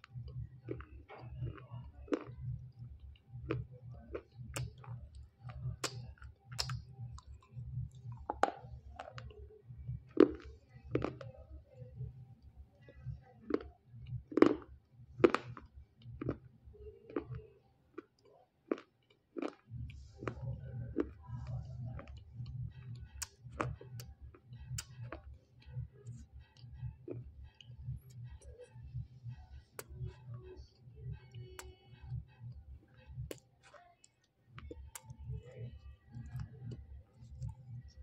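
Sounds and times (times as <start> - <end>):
mouth clicks: 0.0 - 9.4, 18.7 - 33.9, 34.6 - 38.0
person chewing: 0.0 - 9.4, 10.0 - 11.2, 13.5 - 16.4, 18.0 - 28.4, 29.6 - 38.0.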